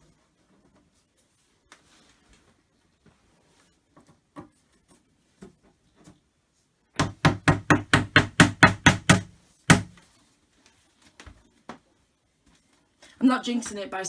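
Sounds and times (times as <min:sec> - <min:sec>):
mallet knocking wood: 0:07.0 - 0:09.9.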